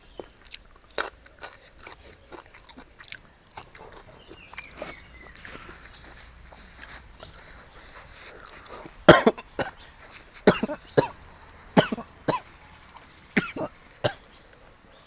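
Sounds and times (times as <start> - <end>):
man coughing hard: 9.0 - 9.8, 10.4 - 11.2, 11.8 - 12.5, 13.4 - 14.2.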